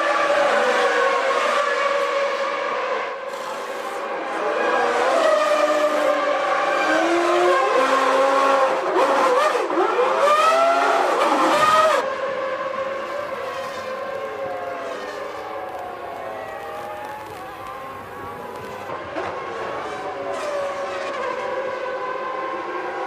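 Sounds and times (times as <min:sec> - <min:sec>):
racing car engines revving past: 0:00.0 - 0:15.6.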